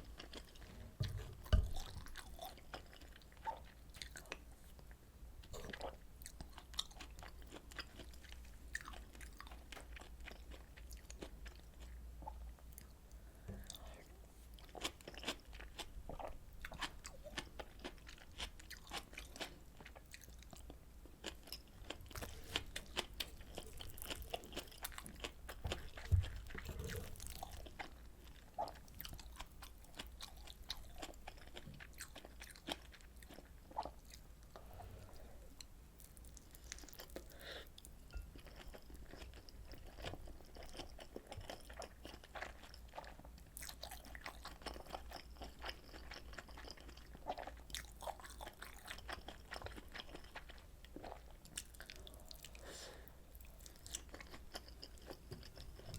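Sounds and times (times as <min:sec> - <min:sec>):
faint low hum: 0:00.0 - 0:55.9
thump: 0:01.0 - 0:01.9
crunchy chewing: 0:14.6 - 0:37.6, 0:53.4 - 0:55.9.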